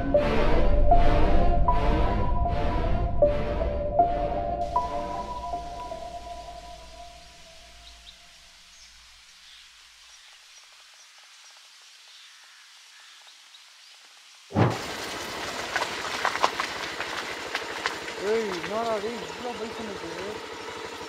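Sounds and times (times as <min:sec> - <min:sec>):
background music: 0:00.0 - 0:08.0
outdoor crackles and sharp knocks: 0:14.0 - 0:21.0.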